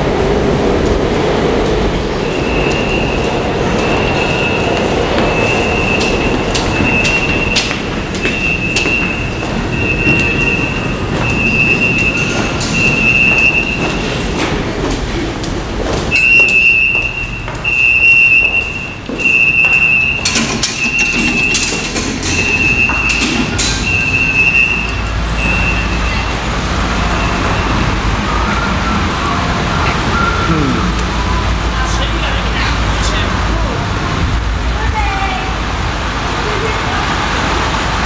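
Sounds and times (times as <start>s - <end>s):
subway train running on rails: 0.0s - 38.0s
pulsing high squeal: 2.1s - 14.2s
sharp clanks over track: 2.3s - 17.7s, 18.4s - 26.4s.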